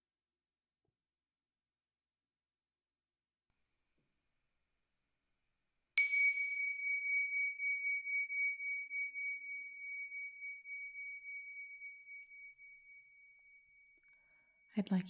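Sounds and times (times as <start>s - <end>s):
small metal bell ringing: 6.0s - 14.7s.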